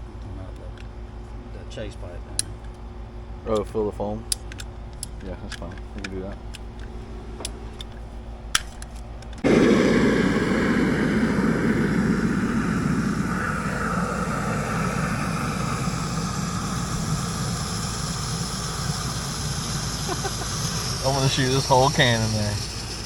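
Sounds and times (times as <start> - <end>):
spray foam can hissing: 14.2 - 23.0.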